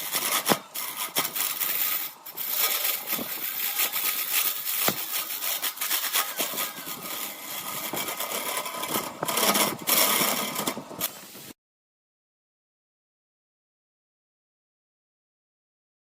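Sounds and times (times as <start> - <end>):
lathe tool scraping workpiece: 0.0 - 11.3.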